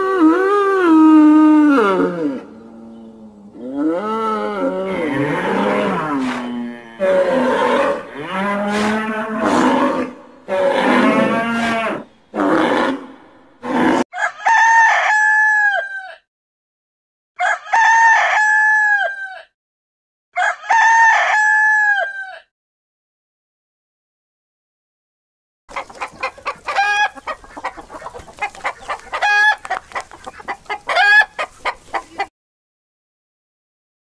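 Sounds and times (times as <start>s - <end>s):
bull mooing: 0.1s - 14.0s
rooster crowing: 14.1s - 16.3s, 17.4s - 19.5s, 20.4s - 22.5s.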